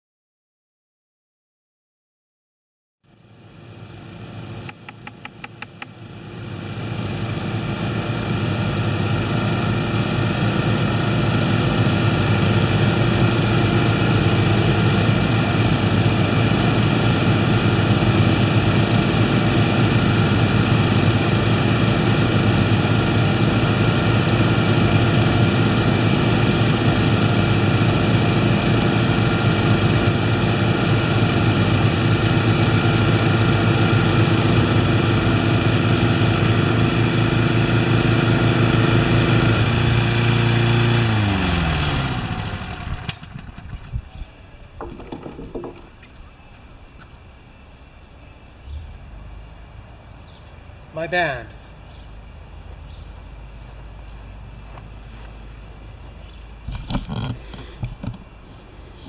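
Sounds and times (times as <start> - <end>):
lawn mower engine idling: 3.1 - 59.0
clicks: 4.6 - 5.9.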